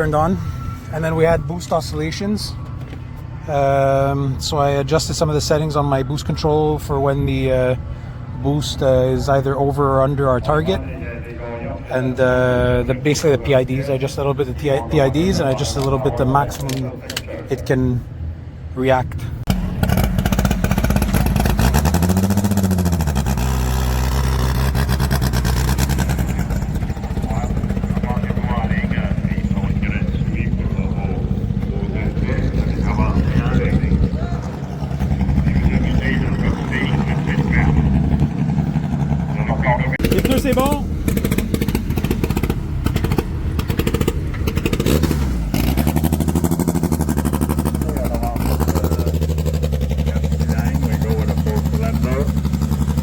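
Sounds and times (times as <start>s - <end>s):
race car engine idling and revving: 0.0s - 53.0s.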